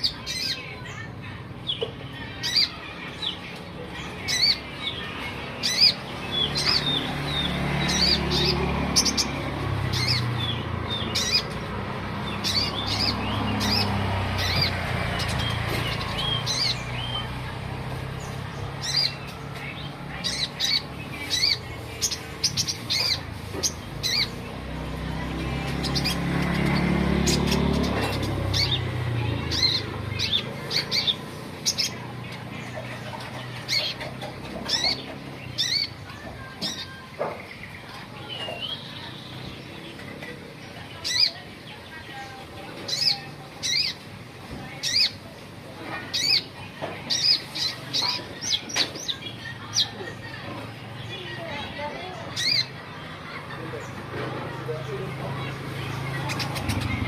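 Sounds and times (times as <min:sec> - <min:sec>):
sunbird high chirps and trills: 0:00.0 - 0:24.6.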